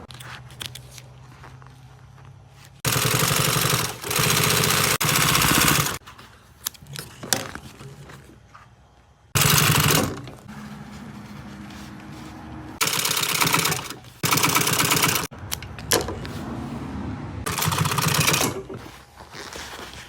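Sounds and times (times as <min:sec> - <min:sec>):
sewing machine rattling: 0:02.8 - 0:06.0, 0:09.4 - 0:10.5, 0:12.8 - 0:15.3, 0:17.4 - 0:19.0.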